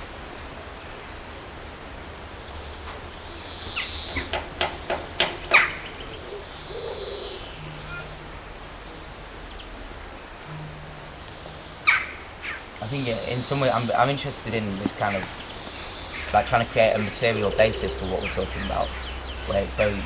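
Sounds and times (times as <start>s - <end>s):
faint outdoor background: 0.0s - 20.0s
bird calling sharply: 3.6s - 13.8s.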